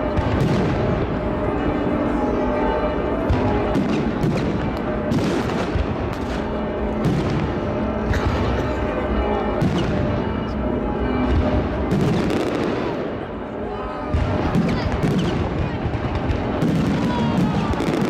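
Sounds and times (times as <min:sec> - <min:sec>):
fireworks bursting: 0:00.0 - 0:01.4, 0:03.2 - 0:08.4, 0:11.3 - 0:13.3, 0:14.1 - 0:18.0
music playing: 0:00.0 - 0:18.0.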